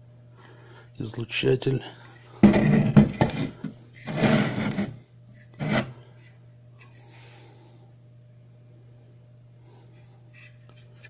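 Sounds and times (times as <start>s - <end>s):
steady low hum: 0.0s - 11.0s
parts rubbing and scraping: 2.0s - 7.0s, 10.3s - 11.0s.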